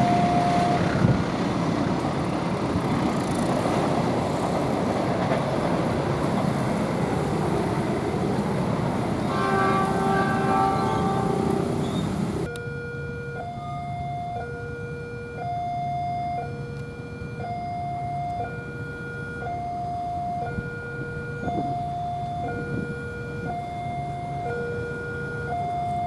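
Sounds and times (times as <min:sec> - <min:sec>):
level crossing two-tone alarm: 0:00.0 - 0:00.9, 0:12.4 - 0:26.0
passing train noise: 0:00.0 - 0:12.6, 0:14.3 - 0:26.0
train horn: 0:09.2 - 0:12.5.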